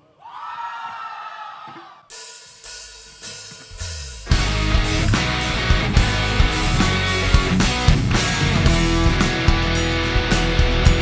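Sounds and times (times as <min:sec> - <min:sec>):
audience cheering and whooping: 0:00.2 - 0:02.1.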